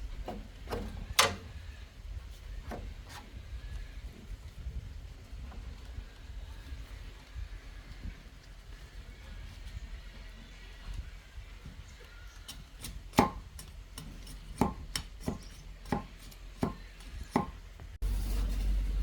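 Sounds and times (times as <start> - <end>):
blade chopping bamboo: 12.8 - 13.4.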